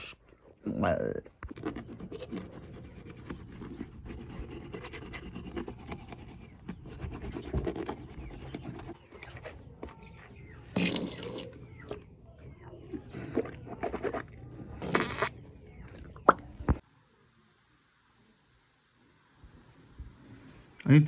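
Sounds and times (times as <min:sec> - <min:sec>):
toothbrush scrubbing teeth: 0:01.5 - 0:09.5, 0:13.2 - 0:15.4.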